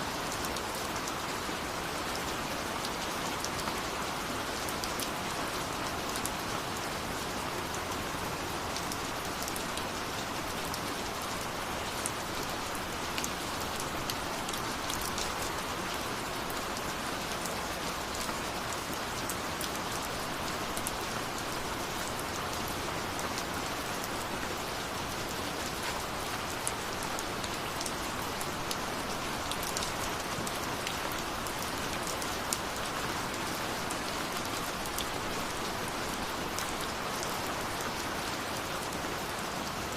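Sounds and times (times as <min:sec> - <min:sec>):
raindrops ticking on a surface: 0:00.1 - 0:39.9.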